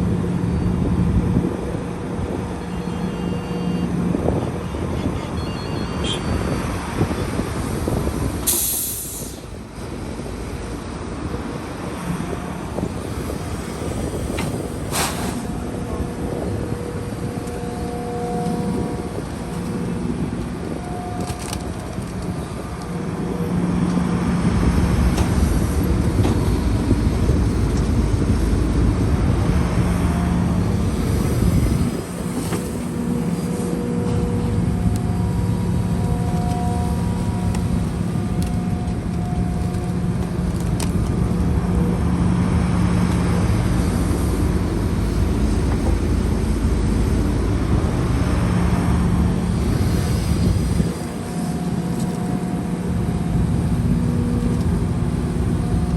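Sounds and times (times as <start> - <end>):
heavy diesel machine engine: 0.0 - 55.9.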